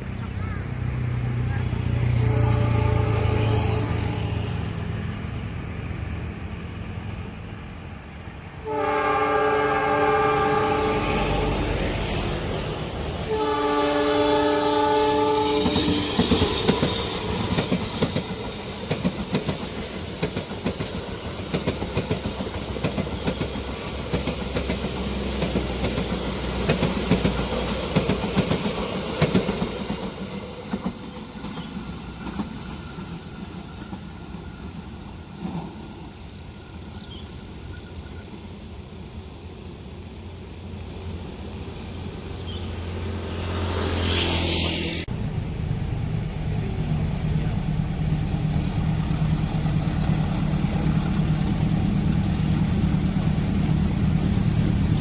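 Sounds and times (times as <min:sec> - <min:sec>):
train horn blasts: 0:02.0 - 0:04.6, 0:08.6 - 0:17.2
train wheels clacking over rail joints: 0:15.2 - 0:35.9
locomotive engine rumble: 0:45.0 - 0:55.0.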